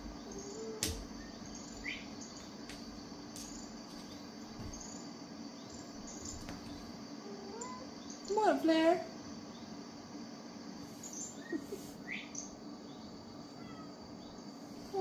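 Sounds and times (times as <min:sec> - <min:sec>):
steady low hum: 0:00.0 - 0:15.0
faint high chirps: 0:00.2 - 0:02.4.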